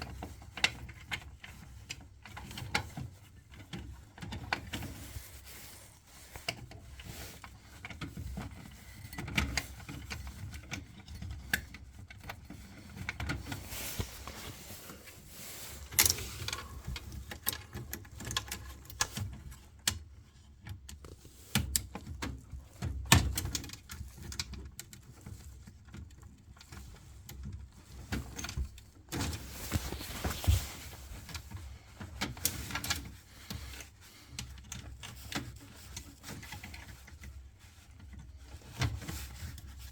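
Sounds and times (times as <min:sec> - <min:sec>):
clicks and knocks of hands working: 0:07.8 - 0:26.8.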